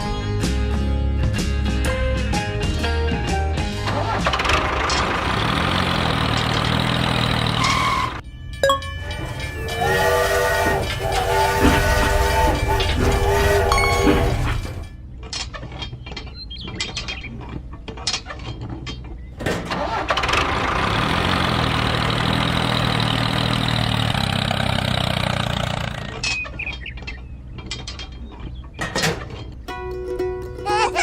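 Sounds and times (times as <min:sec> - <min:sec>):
small engine running: 0:03.8 - 0:08.2, 0:19.7 - 0:26.2.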